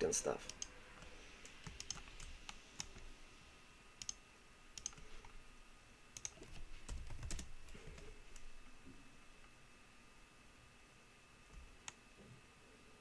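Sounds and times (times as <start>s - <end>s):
mouse and keyboard clicks: 0.5s - 3.1s, 4.8s - 5.1s, 6.2s - 6.6s.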